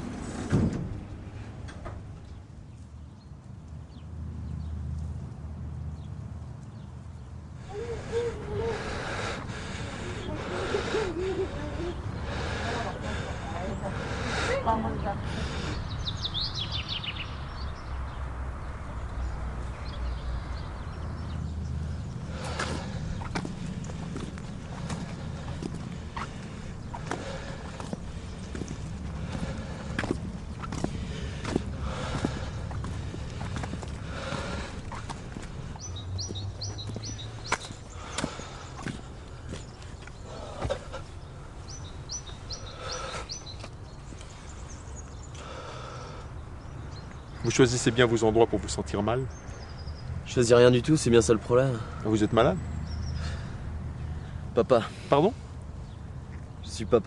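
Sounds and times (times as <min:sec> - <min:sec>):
bird chirping: 0:06.0 - 0:50.8, 0:51.9 - 0:54.4
small bird chirping: 0:34.3 - 0:45.4.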